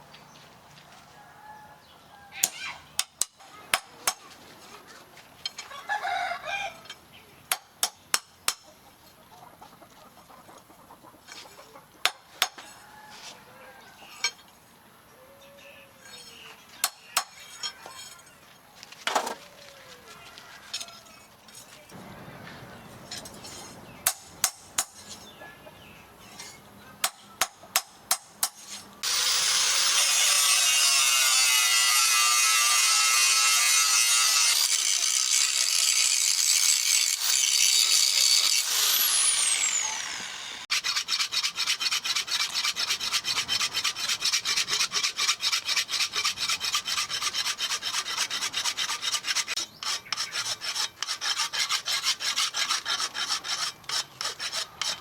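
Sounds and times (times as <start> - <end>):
rubbing strokes on blade: 16.0 - 18.3, 23.2 - 25.4, 26.2 - 26.6, 28.2 - 55.0
power tool whining: 29.0 - 40.7.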